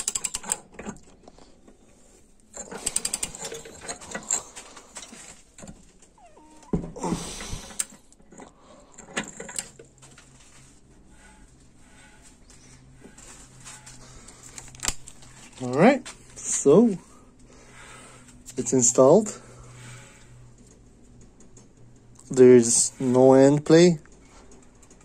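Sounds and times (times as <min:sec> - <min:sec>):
socket ratchet clicking: 0:00.0 - 0:00.6, 0:02.7 - 0:03.6
metallic clicks and clatter: 0:00.0 - 0:01.5, 0:02.4 - 0:06.1, 0:07.7 - 0:16.3, 0:18.2 - 0:25.0.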